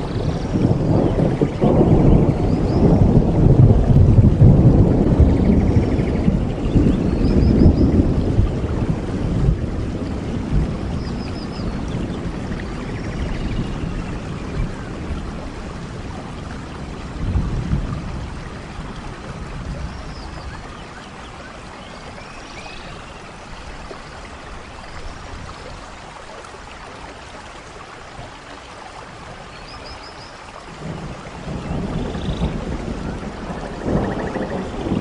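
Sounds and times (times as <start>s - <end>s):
thunder rumbling: 0.0s - 21.2s, 30.7s - 35.0s
steady rain: 0.0s - 35.0s.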